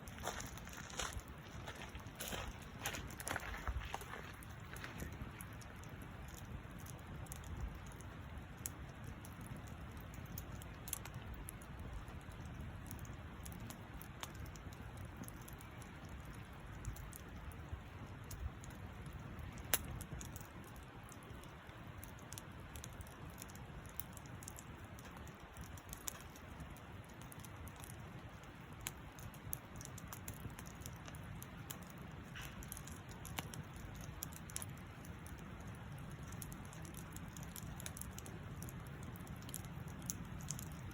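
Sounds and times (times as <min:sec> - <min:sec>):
campfire crackling: 0:00.0 - 0:40.9
sharp pops of fire: 0:02.0 - 0:40.9
rush of flame: 0:16.7 - 0:40.9.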